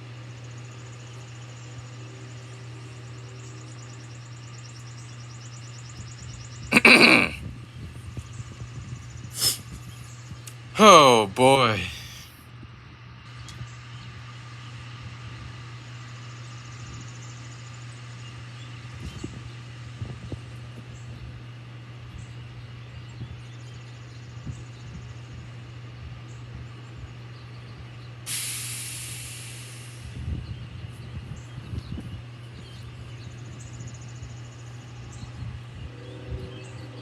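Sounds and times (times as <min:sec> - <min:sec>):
air brake hiss: 0:09.3 - 0:09.7, 0:28.3 - 0:30.3.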